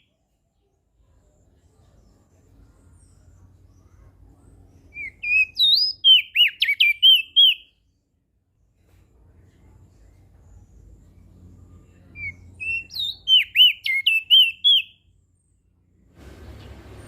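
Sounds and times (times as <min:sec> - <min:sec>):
bird singing whistled notes: 0:04.8 - 0:08.0, 0:11.8 - 0:15.5.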